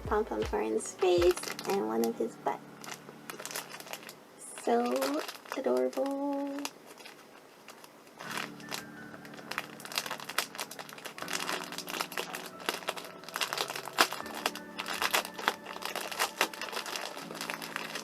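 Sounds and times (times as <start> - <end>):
soft background music: 0.0 - 7.1, 7.9 - 18.0
crinkly packaging rustling: 0.1 - 18.0.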